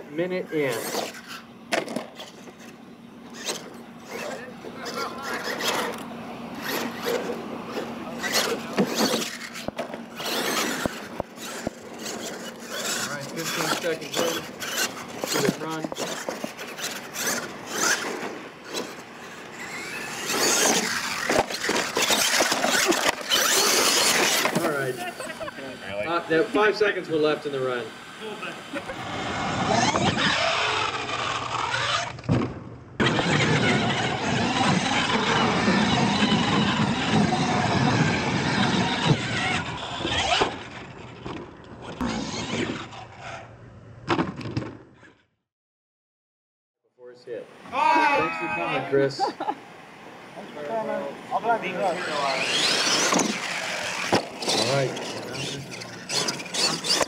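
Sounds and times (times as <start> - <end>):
toy truck tyres scrabbling dirt: 0.6 - 25.5, 28.9 - 45.2, 51.8 - 57.0
scraping and rustling: 0.7 - 25.3, 52.4 - 57.0
toy truck rolling over knock: 19.8 - 24.8, 52.4 - 57.0.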